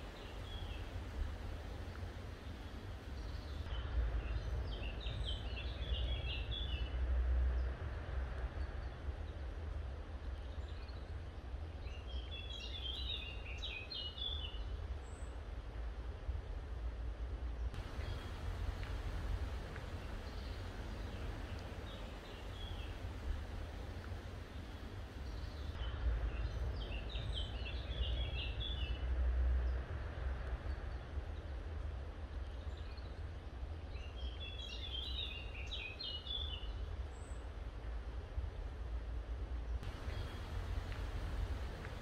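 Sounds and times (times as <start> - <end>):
bird chirping: 0.0 - 1.0, 17.8 - 28.9, 39.8 - 42.0
low rumble and hiss: 0.0 - 42.0.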